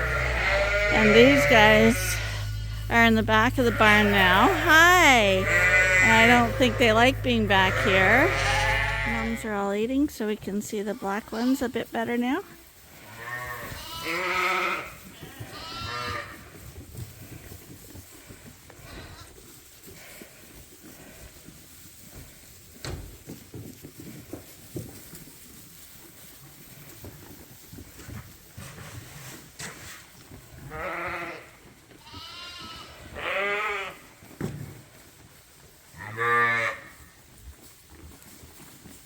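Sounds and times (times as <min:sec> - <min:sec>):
sheep bleating: 0:00.0 - 0:09.5, 0:13.1 - 0:16.4, 0:30.7 - 0:34.0, 0:36.0 - 0:36.9.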